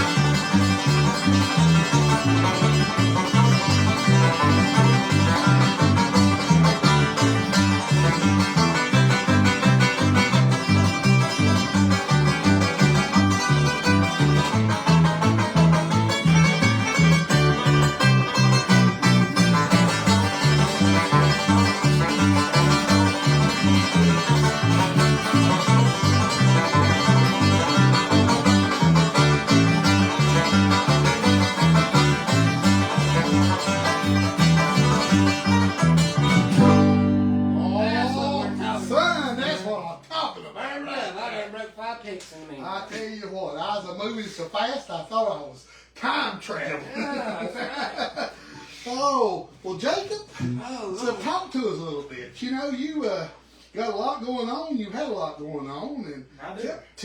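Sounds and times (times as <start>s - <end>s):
bass line: 0.0s - 39.6s
banjo picking: 0.0s - 39.8s
guitar: 0.0s - 39.9s.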